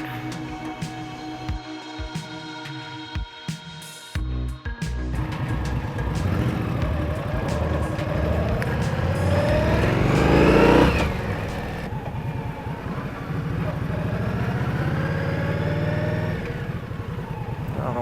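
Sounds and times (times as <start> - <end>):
motorcycle engine accelerating: 4.2 - 18.0.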